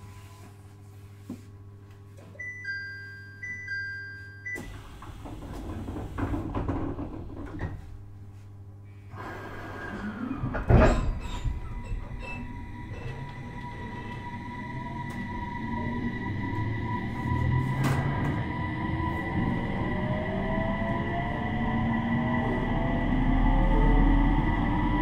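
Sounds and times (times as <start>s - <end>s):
two-tone door chime: 2.4s - 4.8s
sliding doors closing: 4.6s - 7.9s, 9.1s - 22.5s.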